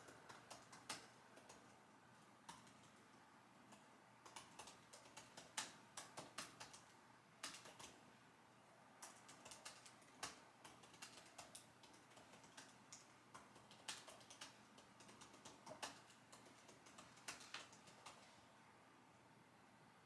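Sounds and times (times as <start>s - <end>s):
computer keyboard typing: 0.0s - 1.8s, 2.4s - 3.0s, 3.7s - 8.0s, 9.0s - 18.3s.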